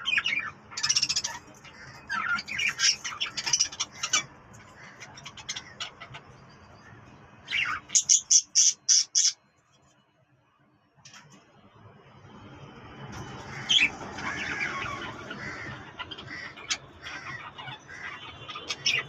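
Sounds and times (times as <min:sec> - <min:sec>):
loud parrot squawks: 0:00.0 - 0:06.2, 0:07.5 - 0:09.4, 0:13.5 - 0:19.0
birds chattering and chirping: 0:00.0 - 0:09.4, 0:13.1 - 0:19.0.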